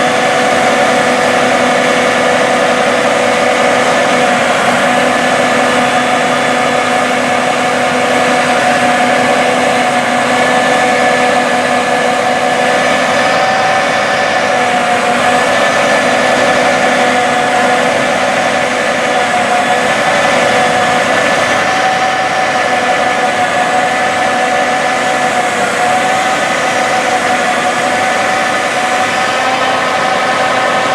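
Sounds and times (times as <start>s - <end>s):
combine harvester engine droning: 0.0s - 30.9s
threshing machinery whine: 0.0s - 30.9s.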